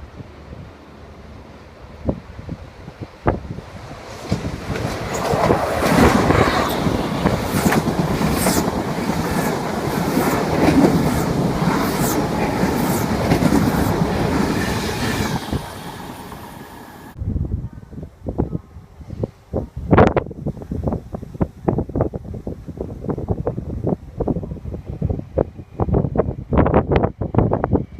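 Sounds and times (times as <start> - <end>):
train passing at speed: 0.0 - 17.2
wheels clicking on rails: 4.2 - 17.2.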